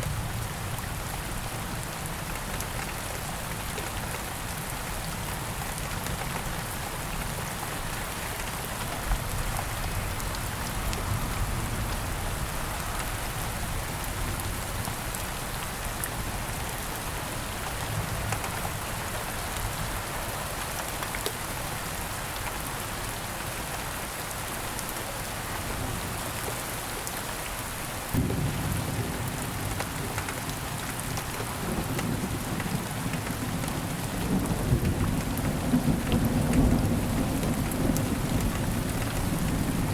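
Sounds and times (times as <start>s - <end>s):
steady rain falling: 0.0s - 39.9s
raindrop ticks: 18.2s - 18.6s, 29.6s - 39.7s
low rumble of thunder: 28.1s - 39.9s.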